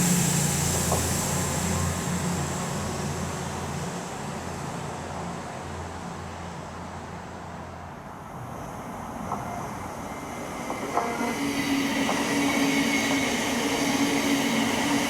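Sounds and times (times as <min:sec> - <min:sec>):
train engine drone: 0:00.0 - 0:15.0.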